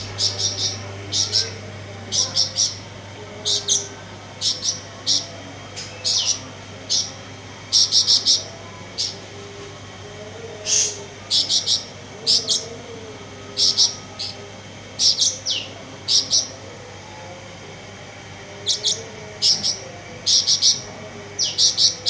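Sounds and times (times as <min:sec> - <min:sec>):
bird singing high chirps: 0:00.0 - 0:09.2, 0:10.7 - 0:12.7, 0:15.0 - 0:16.6, 0:18.6 - 0:22.0.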